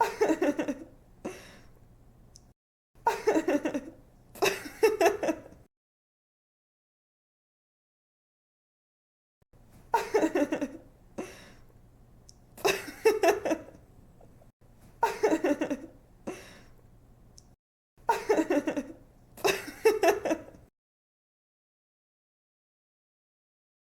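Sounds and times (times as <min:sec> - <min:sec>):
woman giggling: 0:00.0 - 0:00.9, 0:03.1 - 0:05.6, 0:09.9 - 0:10.8, 0:12.6 - 0:13.8, 0:15.0 - 0:16.5, 0:18.1 - 0:20.6.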